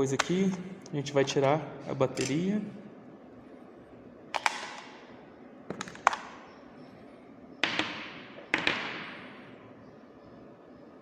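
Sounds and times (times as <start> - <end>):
plastic clicks and knocks: 5.7 - 6.4, 7.6 - 9.2.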